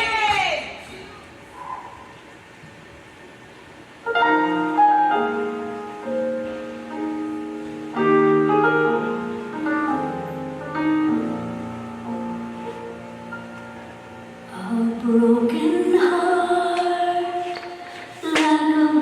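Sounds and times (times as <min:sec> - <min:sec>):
slow solo piano chords: 0:04.1 - 0:19.0.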